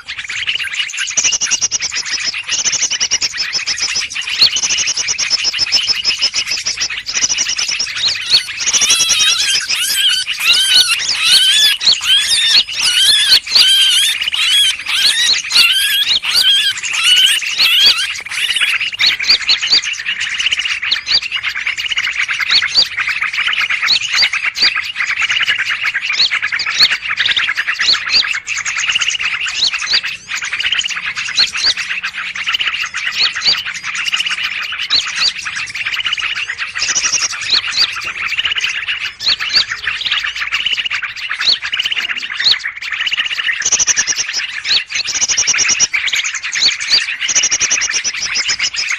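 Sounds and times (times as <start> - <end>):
bird rising and falling chirp: 0.0 - 25.5
chorus of small birds: 0.0 - 48.9.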